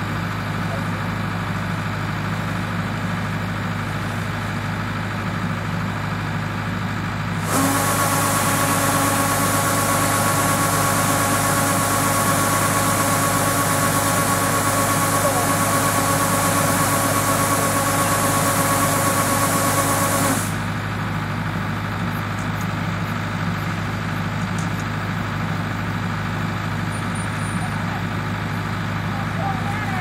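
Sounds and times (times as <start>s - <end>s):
combine harvester diesel engine: 0.0s - 30.0s.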